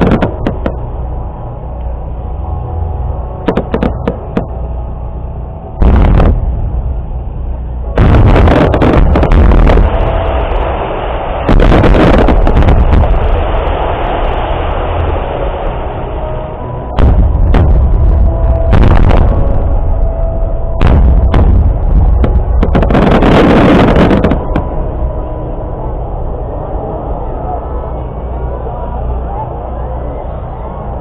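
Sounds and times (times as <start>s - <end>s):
firework booms: 0.0s - 0.8s, 3.5s - 4.5s, 5.8s - 6.6s, 8.0s - 10.6s, 11.4s - 13.7s, 17.0s - 20.0s, 20.8s - 24.8s
firework crackling and rumbling: 0.0s - 5.0s, 5.8s - 26.8s.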